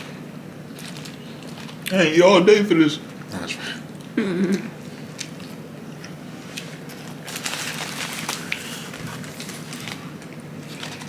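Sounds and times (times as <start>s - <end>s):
food wrappers crinkling: 0.7s - 2.1s, 6.5s - 11.0s.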